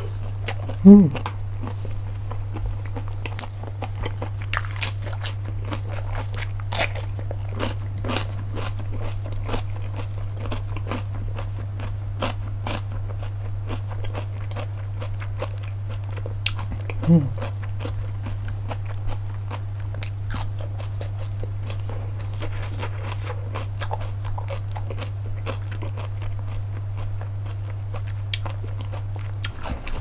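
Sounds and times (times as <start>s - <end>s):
low hum: 0.0s - 13.6s
chewing and crunching: 0.0s - 30.0s.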